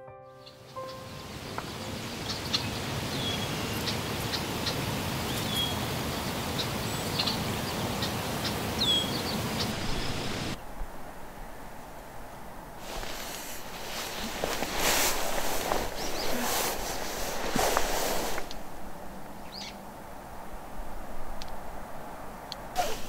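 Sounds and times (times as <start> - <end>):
small birds chirping and whistling: 0.4 - 5.8, 6.6 - 10.4, 13.0 - 17.8, 19.5 - 19.8
steady rustling: 9.7 - 20.2.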